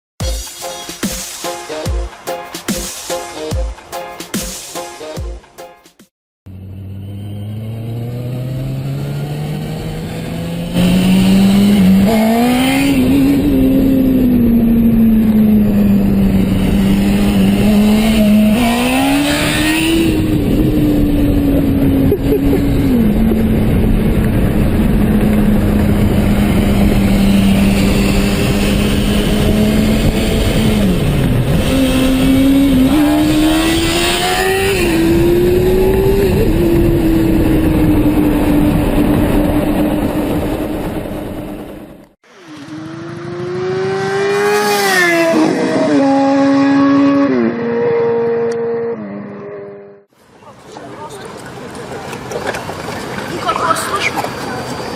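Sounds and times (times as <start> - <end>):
motorcycle engine revving: 6.5 - 50.1.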